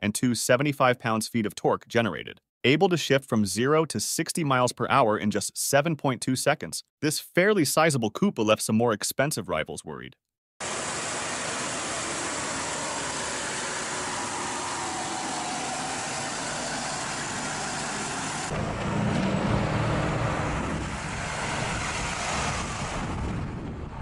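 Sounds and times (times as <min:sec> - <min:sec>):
car engine idling: 0:10.6 - 0:22.6
car driving off: 0:10.6 - 0:24.0.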